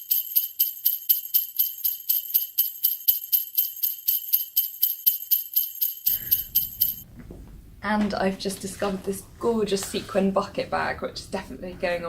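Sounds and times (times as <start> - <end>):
jingle bells shaken: 0.0 - 7.0.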